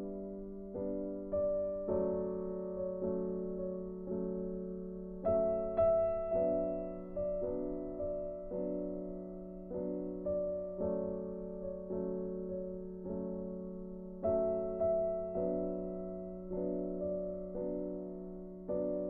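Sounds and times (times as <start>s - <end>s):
slow gentle piano music: 0.0s - 19.0s.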